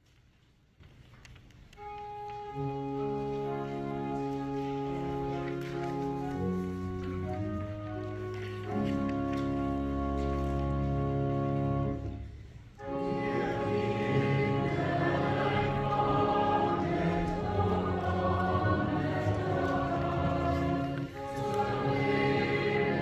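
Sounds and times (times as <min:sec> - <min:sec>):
organ chord: 0:02.0 - 0:23.0
church choir singing a hymn: 0:12.8 - 0:23.0.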